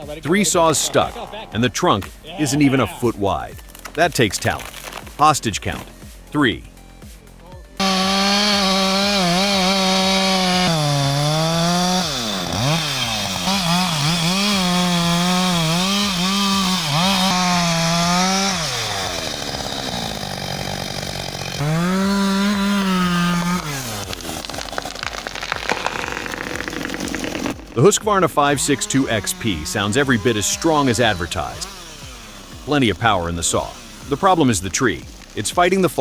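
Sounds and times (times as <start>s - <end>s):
chainsaw cutting and revving: 0.0s - 6.1s, 7.7s - 36.0s.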